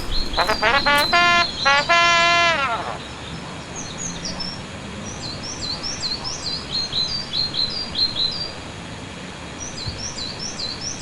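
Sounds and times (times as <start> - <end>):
small birds chirping: 0.0 - 1.5
steady hiss: 0.0 - 1.5.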